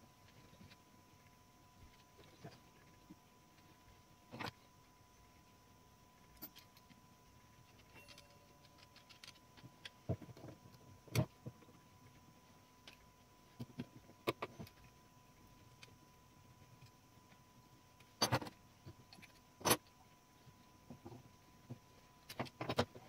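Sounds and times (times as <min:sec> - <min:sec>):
small metallic clicks and knocks: 0:06.3 - 0:07.0, 0:07.6 - 0:11.8, 0:18.0 - 0:20.0, 0:20.8 - 0:23.0.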